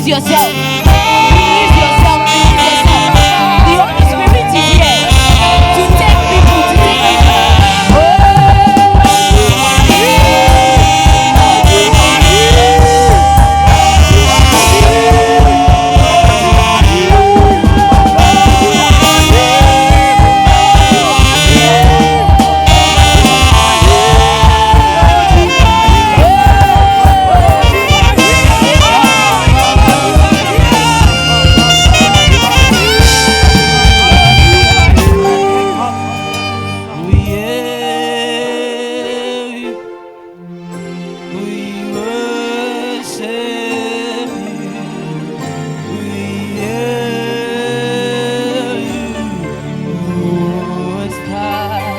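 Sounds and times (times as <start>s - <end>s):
steady drum beat: 0.0s - 37.6s
saxophone melody: 0.0s - 51.9s.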